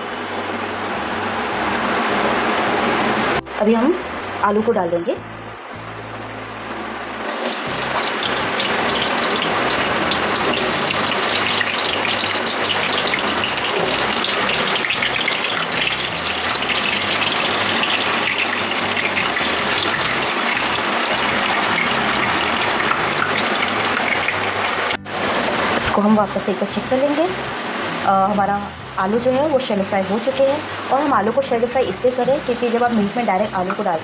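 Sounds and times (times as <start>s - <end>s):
potatoes sizzling in hot oil: 7.2s - 34.0s.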